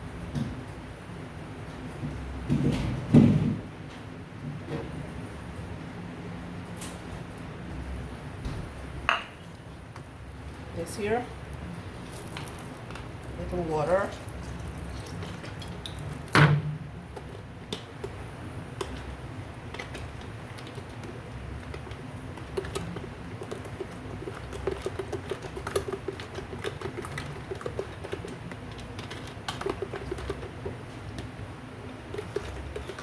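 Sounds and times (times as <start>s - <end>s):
utensils clicking and tapping: 19.7s - 31.3s, 32.1s - 33.0s.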